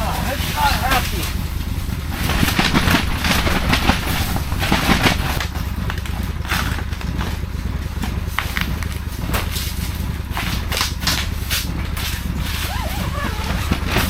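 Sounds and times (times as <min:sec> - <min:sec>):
sled engine low rumble: 0:00.0 - 0:14.0
wind gusts on microphone: 0:00.1 - 0:05.4.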